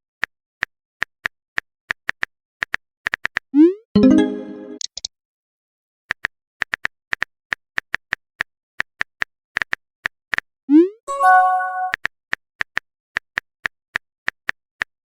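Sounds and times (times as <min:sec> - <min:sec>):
chiming message tone: 0:04.0 - 0:04.8, 0:11.1 - 0:11.9.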